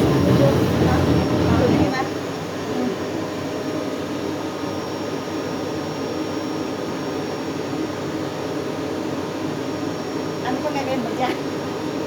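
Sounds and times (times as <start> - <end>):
vacuum cleaner running: 0.0 - 2.1.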